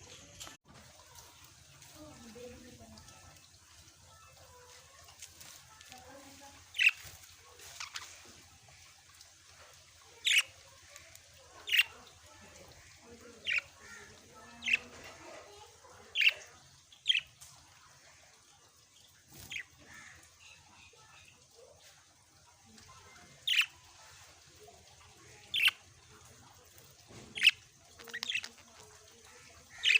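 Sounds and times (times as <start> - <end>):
parrots calling: 6.7 - 7.0, 10.2 - 12.0, 13.4 - 15.0, 27.2 - 29.9.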